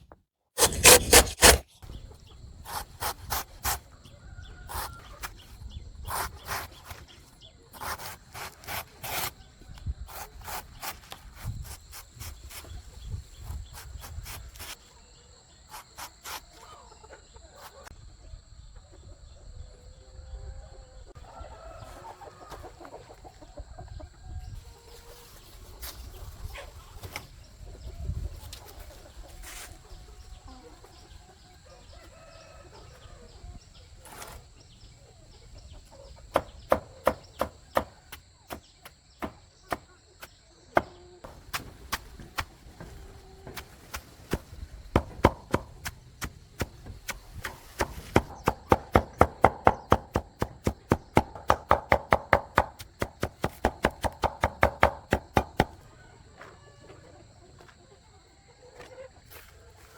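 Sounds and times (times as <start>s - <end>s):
chickens clucking: 20.6s - 38.5s, 39.6s - 59.9s
sharp knocks: 45.0s - 45.8s.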